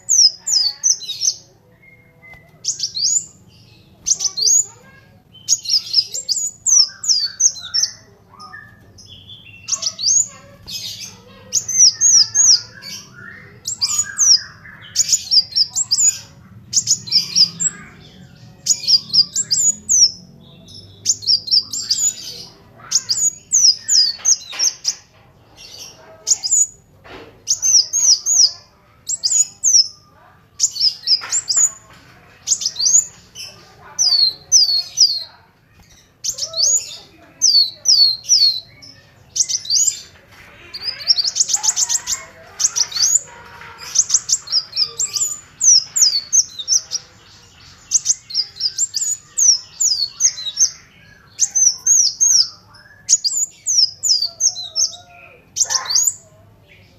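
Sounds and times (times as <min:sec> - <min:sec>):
bird singing high chirps: 0:00.0 - 0:26.8, 0:27.4 - 0:56.9.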